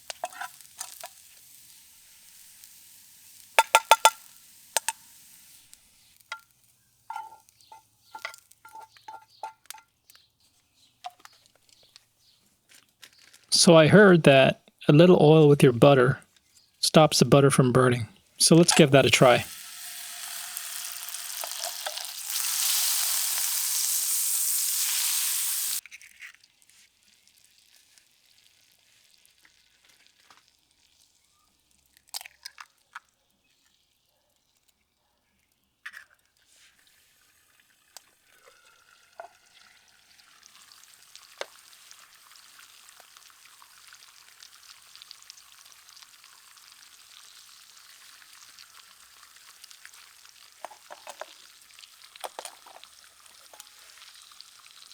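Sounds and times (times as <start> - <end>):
butter and oil sizzling in pan: 0.0 - 9.8, 18.3 - 25.8, 26.9 - 31.5, 36.5 - 54.9.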